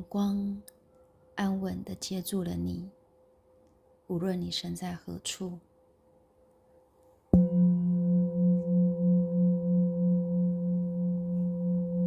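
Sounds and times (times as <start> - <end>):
singing bowl ringing: 7.4 - 12.0.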